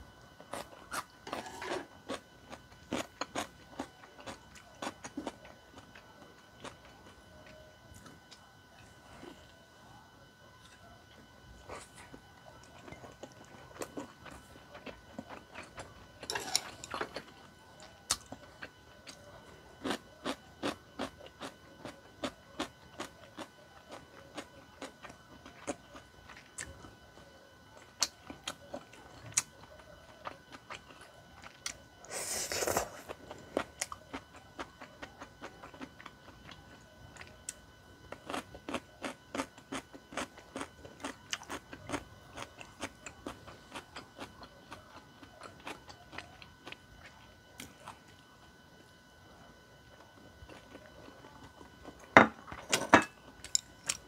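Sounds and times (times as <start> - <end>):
chewing with wet mouth clicks: 11.7 - 26.8, 33.1 - 48.2.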